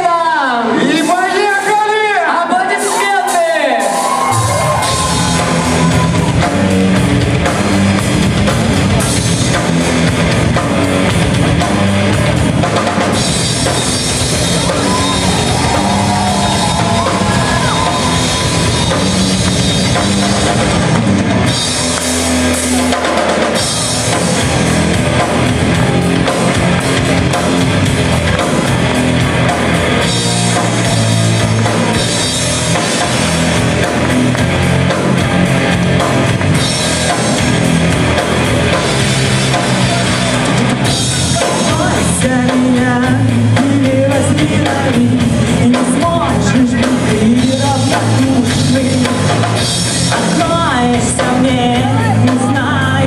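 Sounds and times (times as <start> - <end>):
pounding drum kit: 0.0 - 53.0
bass guitar: 2.8 - 53.0
distorted electric guitars: 2.8 - 53.0.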